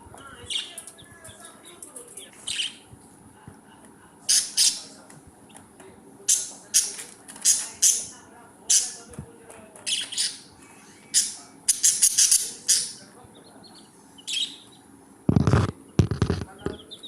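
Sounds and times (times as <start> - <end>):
budgerigars chirping and squawking: 0.2 - 1.6, 2.2 - 2.9, 4.3 - 5.6, 6.2 - 9.1, 9.8 - 17.0.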